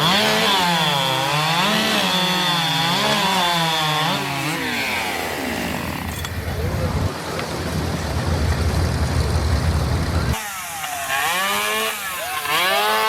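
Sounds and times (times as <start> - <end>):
chainsaw cutting through log: 0.0 - 7.1, 10.3 - 13.0.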